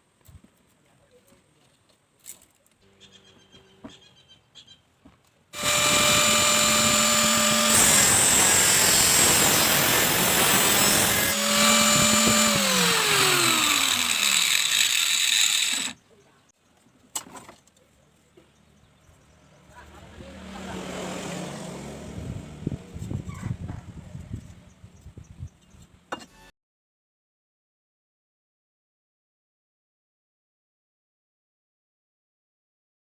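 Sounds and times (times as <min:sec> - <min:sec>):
angle grinder whining: 0:05.6 - 0:16.0.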